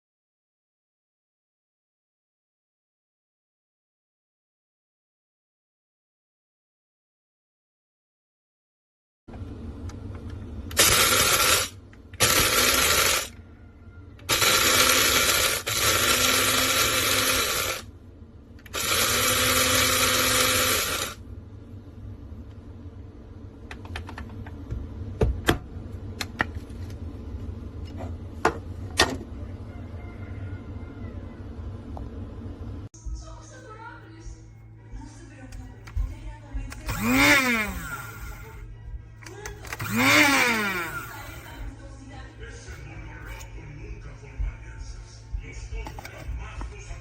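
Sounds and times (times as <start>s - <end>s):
coffee grinder whirring: 10.7s - 13.4s, 14.3s - 17.9s, 18.7s - 21.2s, 36.8s - 38.6s, 39.6s - 41.6s.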